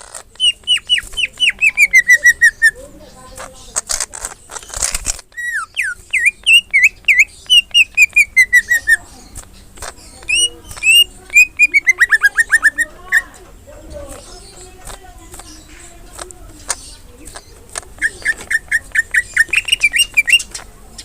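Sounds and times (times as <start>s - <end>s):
scratchy noise: 0.0s - 6.0s, 8.2s - 20.8s
bird singing whistled notes: 0.3s - 3.3s, 5.3s - 13.4s, 16.7s - 21.0s.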